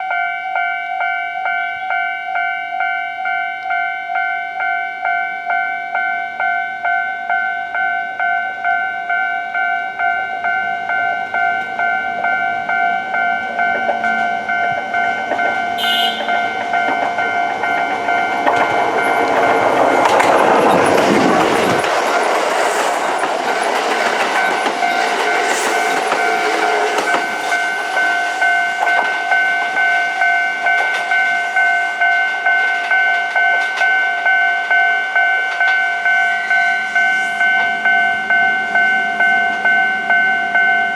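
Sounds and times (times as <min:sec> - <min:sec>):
level-crossing alarm bell: 0:00.0 - 0:40.9
train passing with wheel clatter: 0:04.4 - 0:40.9
train electric horn: 0:15.3 - 0:17.4, 0:25.0 - 0:31.0.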